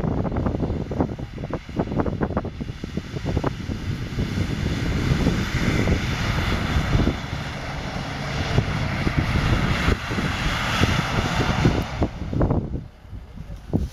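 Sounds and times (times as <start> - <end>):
car engine revving hard: 0.0 - 12.8
wheels spinning in snow: 0.0 - 13.9.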